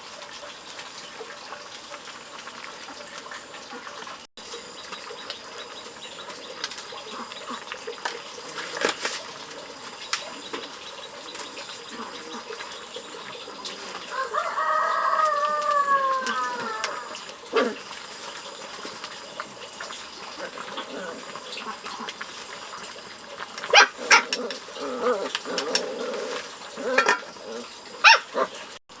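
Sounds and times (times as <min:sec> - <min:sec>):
rooster crowing: 0:14.1 - 0:17.2.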